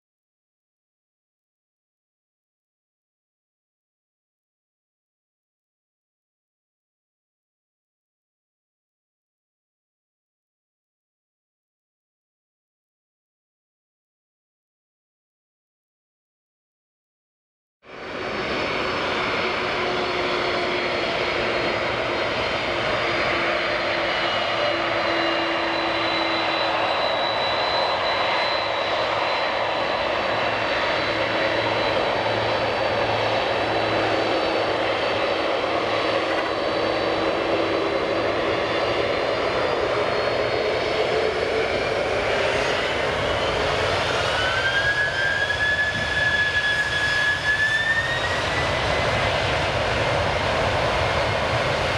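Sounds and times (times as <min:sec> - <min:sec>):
jet engines whining: 0:17.9 - 0:51.9.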